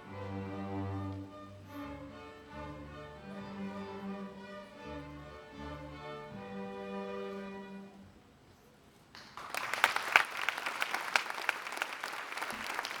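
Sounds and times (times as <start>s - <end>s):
audience applauding: 9.1s - 13.0s.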